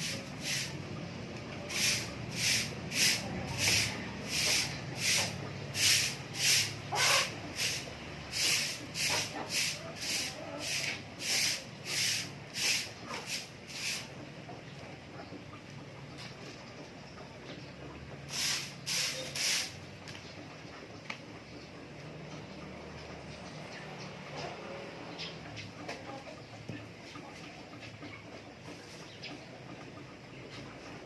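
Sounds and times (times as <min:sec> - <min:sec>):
short hissing swishes: 0:01.7 - 0:14.1, 0:18.3 - 0:19.8.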